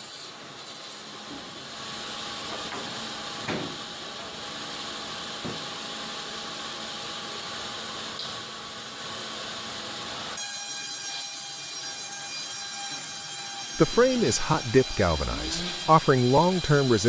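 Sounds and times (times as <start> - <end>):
band sawmill running: 11.6 - 17.0.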